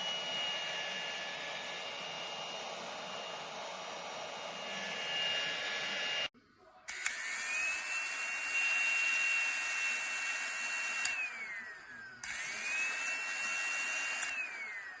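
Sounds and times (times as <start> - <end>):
clipper motor whining: 6.9 - 15.0.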